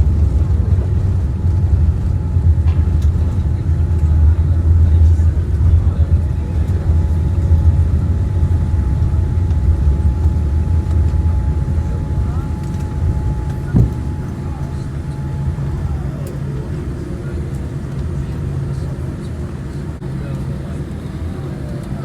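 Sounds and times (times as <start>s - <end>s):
airliner engines and wheels rumbling: 0.0s - 22.0s
steady whine: 0.0s - 22.0s
thump: 13.7s - 14.0s.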